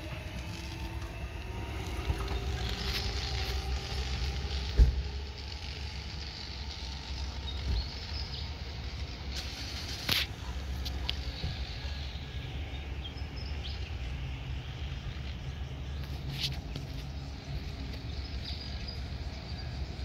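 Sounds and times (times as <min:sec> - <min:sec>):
birds chirping: 0:00.0 - 0:20.0
train rumble: 0:00.0 - 0:20.0
sharp thump: 0:04.8 - 0:05.0.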